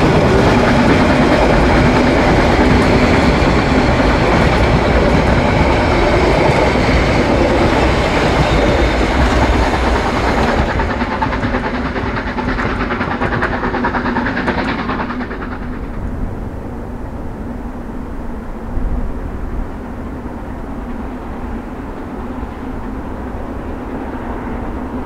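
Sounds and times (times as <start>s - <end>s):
train wheels clattering over joints: 0.0s - 16.2s.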